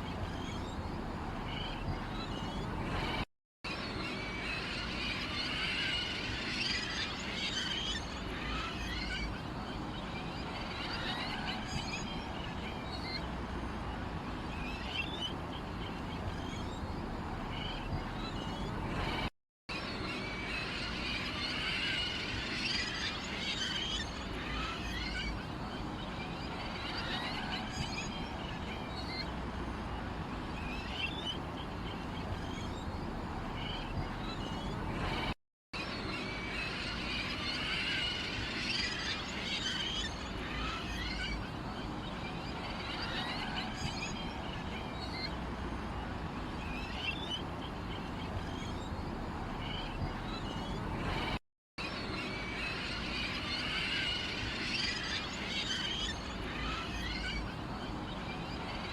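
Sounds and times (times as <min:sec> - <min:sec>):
small birds chirping: 0:00.0 - 0:58.9.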